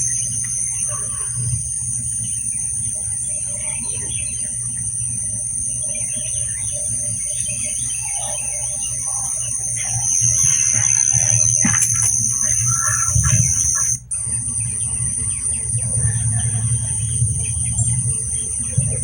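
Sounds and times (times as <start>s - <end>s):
frog calls: 0.0s - 14.8s
constant low hum: 0.0s - 19.0s
crickets trilling: 0.0s - 19.0s.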